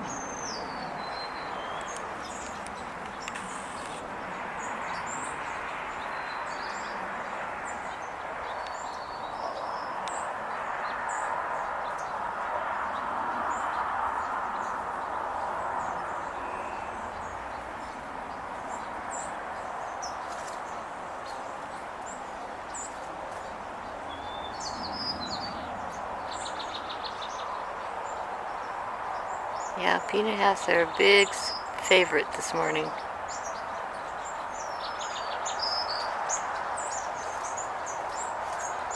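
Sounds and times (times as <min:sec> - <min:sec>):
sparrows chirping: 0:00.0 - 0:04.0, 0:29.2 - 0:38.9.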